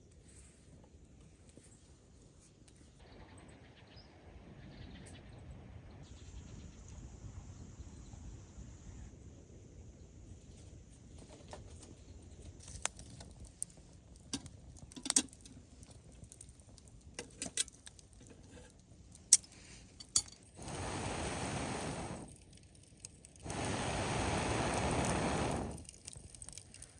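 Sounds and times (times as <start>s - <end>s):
light metallic clinks and taps: 17.2s - 20.6s
steady rushing noise: 20.6s - 22.3s, 23.4s - 25.9s.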